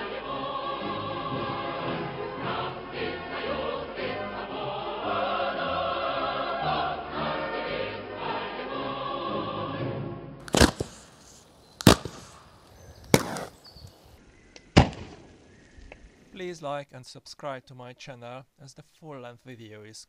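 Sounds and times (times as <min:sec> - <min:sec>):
men's choir singing: 0:00.0 - 0:09.8
model rocket launch pops: 0:10.5 - 0:14.0, 0:14.6 - 0:15.4.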